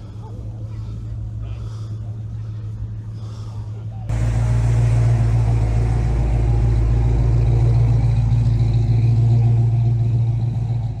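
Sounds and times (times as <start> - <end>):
car engine rumbling: 4.1 - 11.0.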